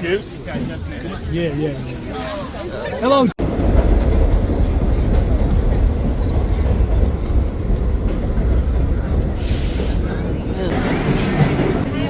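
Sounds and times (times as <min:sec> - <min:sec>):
subway train rumbling on rails: 0:00.0 - 0:12.0.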